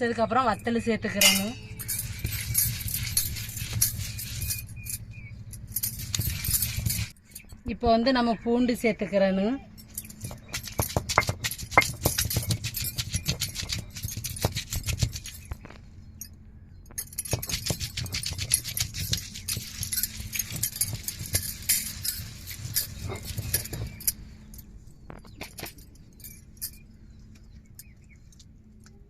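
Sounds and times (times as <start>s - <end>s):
stone roller grinding on stone slab: 1.2s - 5.0s, 5.8s - 7.2s, 10.0s - 15.7s, 17.2s - 24.2s.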